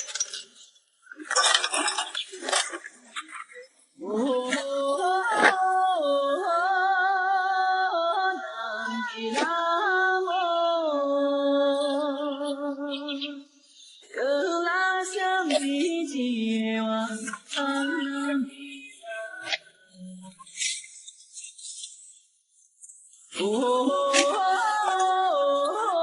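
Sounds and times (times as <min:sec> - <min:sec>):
woman singing with vibrato: 0:04.0 - 0:20.5, 0:23.3 - 0:26.0.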